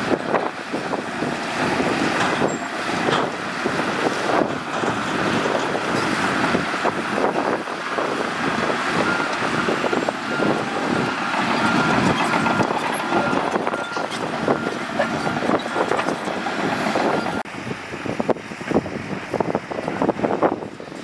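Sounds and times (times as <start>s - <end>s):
bulldozer diesel engine clattering: 0.0s - 21.0s
reversing alarm beeping: 9.0s - 17.4s.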